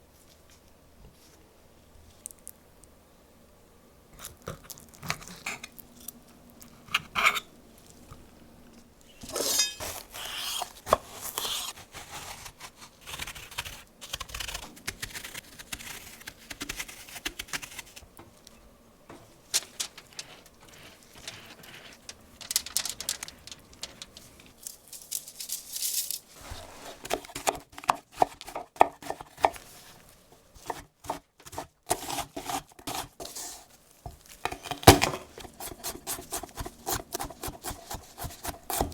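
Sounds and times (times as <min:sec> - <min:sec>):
knife and utensils tapping clinking: 0:09.2 - 0:10.0.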